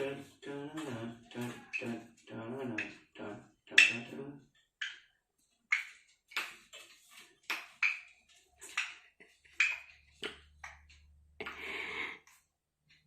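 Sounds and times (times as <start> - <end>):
parrot clicks and chirps: 3.7 - 6.6, 7.5 - 11.6.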